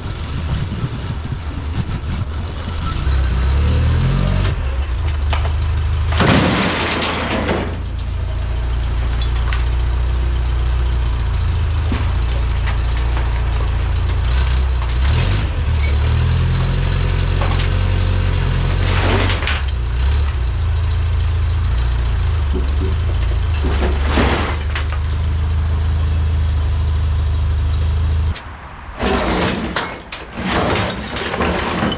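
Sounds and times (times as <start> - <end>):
diesel engine revving: 0.0 - 31.9
scrap metal clattering: 4.4 - 20.8, 22.2 - 25.6, 27.6 - 31.9.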